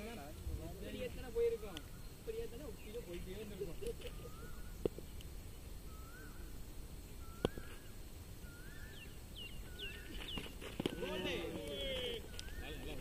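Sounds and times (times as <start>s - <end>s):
faint outdoor ambience: 0.0s - 13.0s
bird whistling call: 4.0s - 4.9s, 5.8s - 6.5s, 7.2s - 11.2s, 11.8s - 13.0s
quick falling bird chirps: 7.2s - 10.8s.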